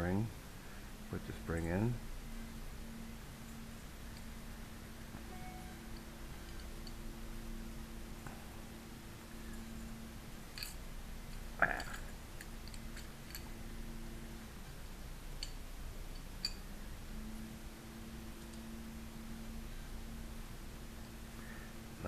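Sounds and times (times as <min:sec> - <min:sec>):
low hum: 0:00.0 - 0:22.0
metallic ring: 0:05.2 - 0:07.0.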